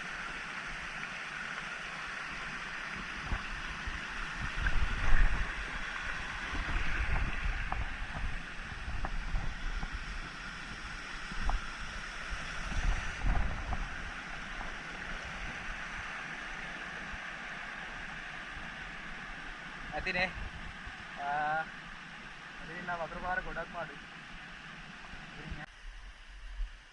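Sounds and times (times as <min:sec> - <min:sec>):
stream water rushing: 0:00.0 - 0:26.5
wind buffeting microphone: 0:03.2 - 0:11.8, 0:12.5 - 0:15.6.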